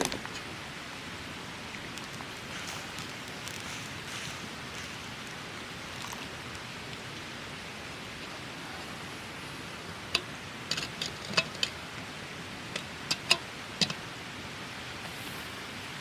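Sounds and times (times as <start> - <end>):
campfire burning with hiss: 0.0 - 16.0
fire crackling and popping: 1.4 - 7.3.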